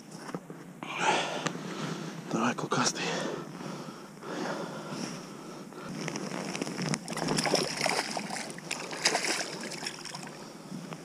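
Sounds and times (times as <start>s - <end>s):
water splashing and sloshing: 6.0s - 10.9s.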